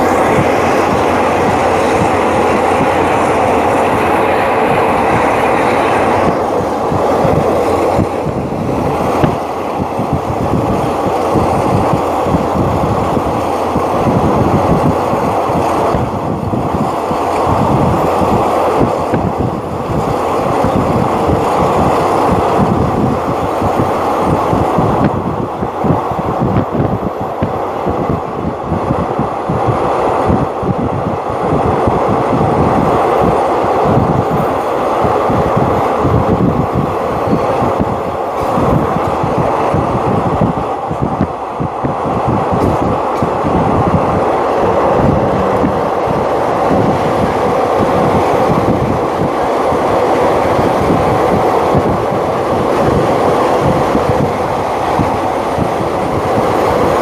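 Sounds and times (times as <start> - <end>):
train wheels rumbling on rails: 0.0 - 57.0
wind rushing past microphone: 0.0 - 57.0.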